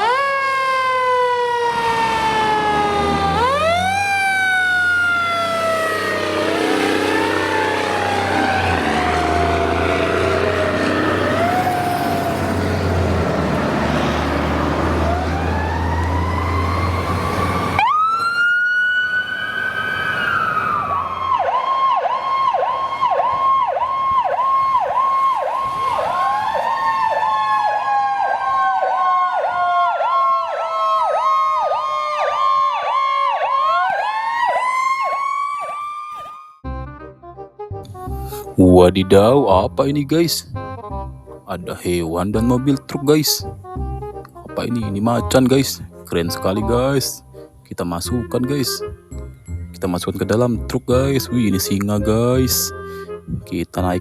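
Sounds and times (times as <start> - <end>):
electronic sirens sweeping: 0.0 - 36.6
fast warbling siren: 0.0 - 36.6.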